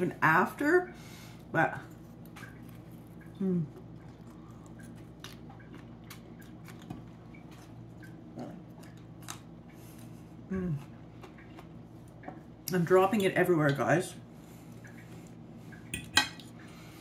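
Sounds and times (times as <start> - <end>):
crisp crunching while chewing: 1.8 - 10.0
person murmuring mm: 3.4 - 3.7, 10.5 - 10.9.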